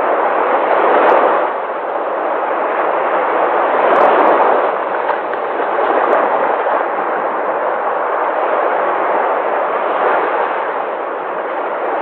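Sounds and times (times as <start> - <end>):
waves washing onto shore: 0.0 - 12.0.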